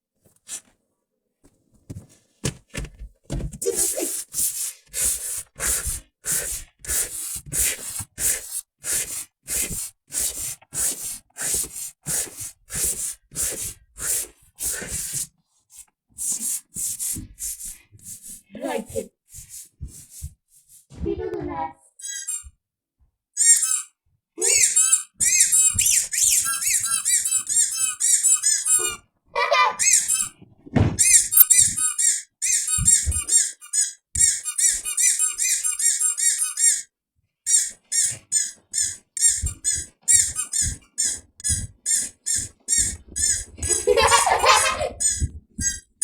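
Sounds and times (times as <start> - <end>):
rapid high-pitched squeaks: 22.0 - 22.5, 23.4 - 29.0, 29.8 - 30.4, 31.0 - 36.9, 37.5 - 46.0.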